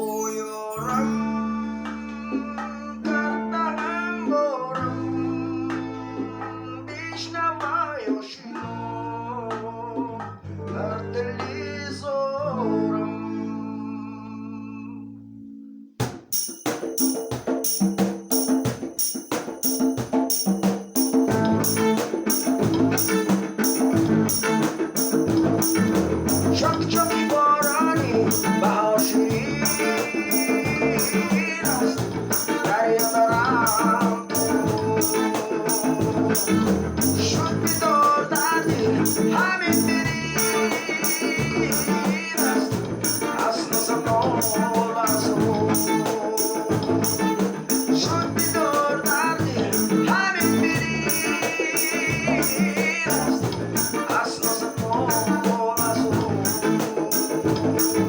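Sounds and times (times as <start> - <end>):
shaker keeping a steady beat: 16.0 - 58.0.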